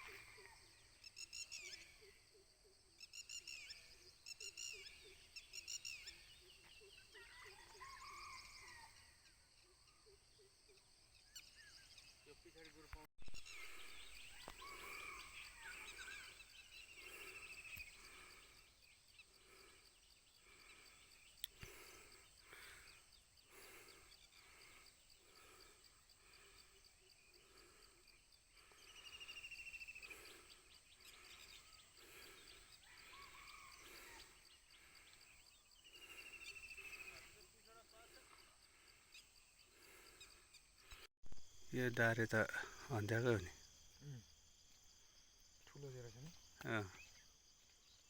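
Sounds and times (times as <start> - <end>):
insects buzzing: 10.7 - 48.0.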